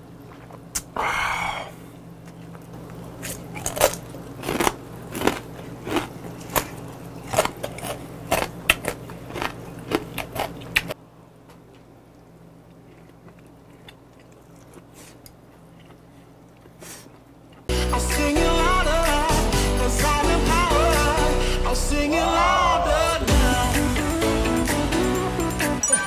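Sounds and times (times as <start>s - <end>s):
crab shells crunching while chewing: 2.3s - 11.9s, 12.6s - 17.7s.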